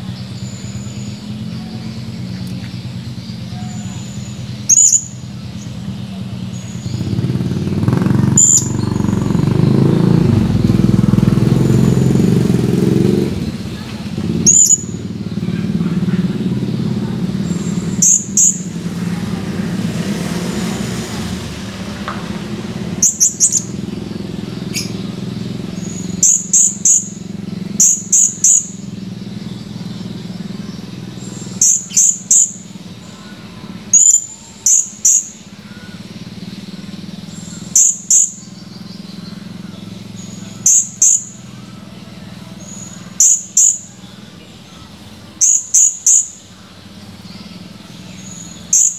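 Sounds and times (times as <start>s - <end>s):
parrot chirping calls: 3.4s - 9.2s, 13.0s - 19.0s, 22.6s - 29.1s, 30.0s - 39.5s, 40.1s - 41.5s, 42.6s - 43.9s, 44.7s - 46.5s, 48.3s - 48.9s.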